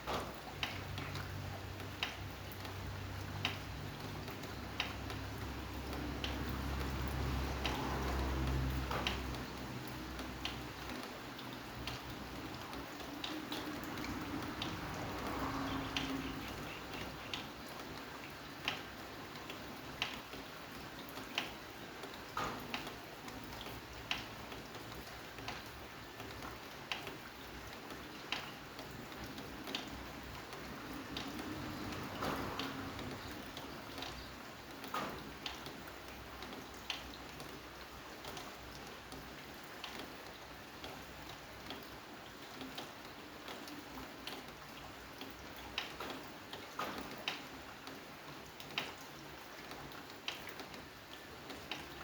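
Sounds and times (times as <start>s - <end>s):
soft rain hiss: 0.0s - 52.0s
water drops falling: 11.8s - 18.0s.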